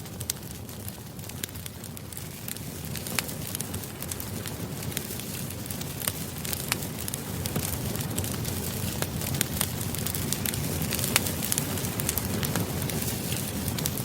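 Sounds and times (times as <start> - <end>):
flames rumbling: 0.0 - 14.0
wood crackling and popping: 0.0 - 14.0.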